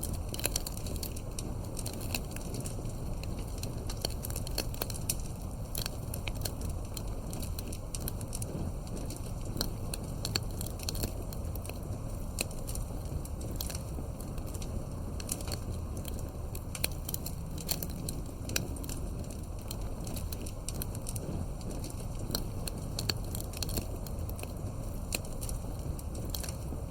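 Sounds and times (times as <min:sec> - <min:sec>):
wood fire crackling: 0:00.0 - 0:26.9.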